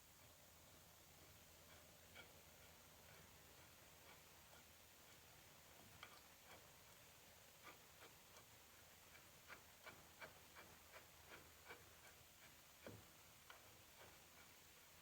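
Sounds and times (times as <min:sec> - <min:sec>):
light clicks and taps: 0:03.0 - 0:14.5.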